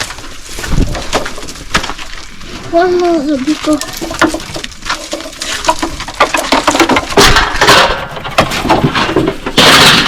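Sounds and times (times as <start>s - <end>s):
hard objects clinking and clattering: 3.5s - 10.0s.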